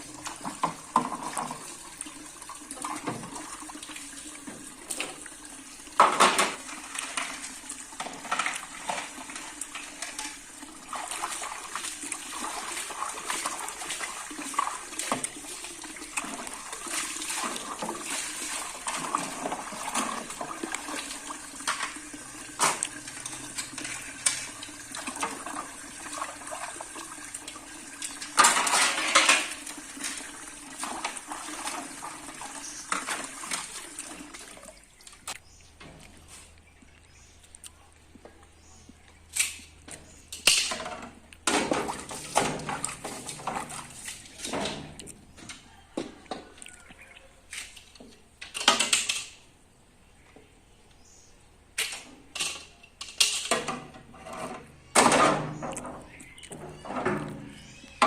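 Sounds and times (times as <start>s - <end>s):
tap water running: 0.0s - 36.2s, 40.7s - 46.8s.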